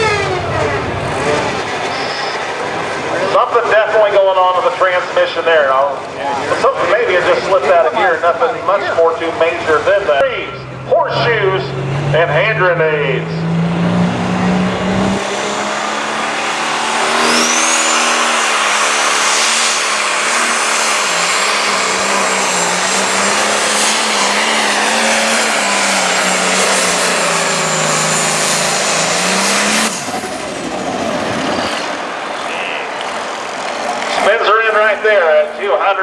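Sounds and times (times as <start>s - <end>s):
turbo whine: 0.0s - 2.7s, 10.2s - 31.6s
diesel tractor engine running: 0.0s - 5.0s, 5.9s - 34.6s.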